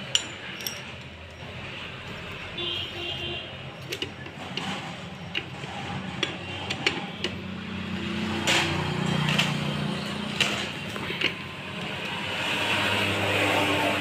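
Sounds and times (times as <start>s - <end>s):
metal tools clinking and tapping: 0.0s - 1.5s, 3.8s - 5.6s.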